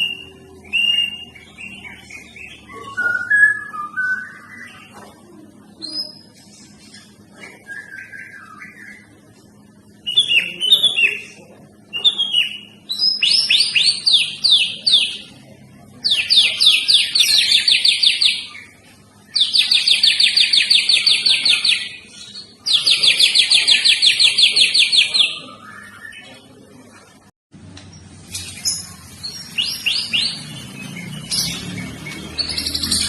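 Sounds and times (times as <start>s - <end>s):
bird whistled chirps: 2.5s - 4.8s.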